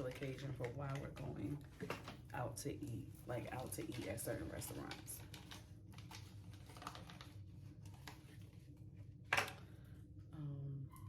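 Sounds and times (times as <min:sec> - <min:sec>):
person humming: 0:10.4 - 0:11.0.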